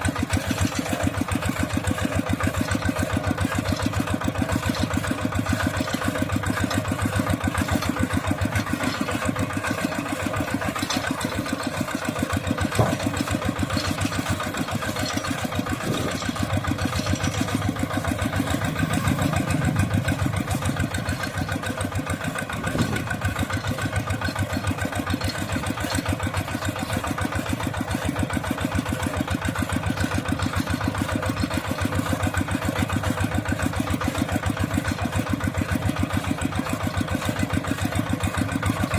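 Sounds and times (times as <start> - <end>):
tractor engine chugging: 0.0 - 38.9.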